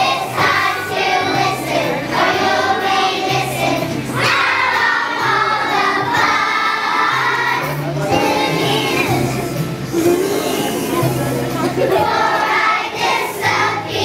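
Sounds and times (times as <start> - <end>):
piano accompaniment: 0.0 - 13.8
children singing together: 0.0 - 14.0.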